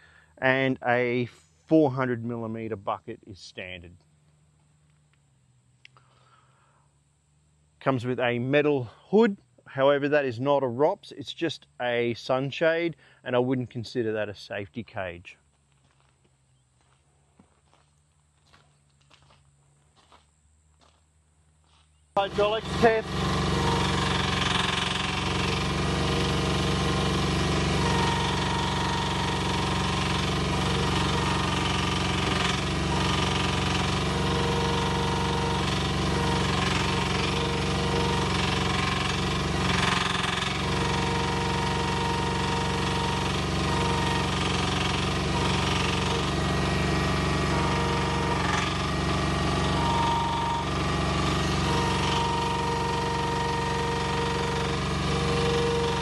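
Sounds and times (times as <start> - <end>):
hydraulic whine: 0.0 - 2.6, 22.2 - 56.0
excavator engine running: 15.4 - 56.0.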